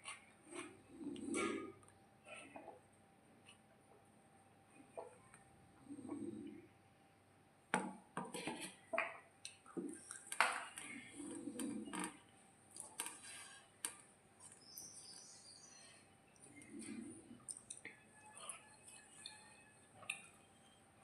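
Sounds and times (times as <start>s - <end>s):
chewing and mouth noises: 16.4s - 20.5s.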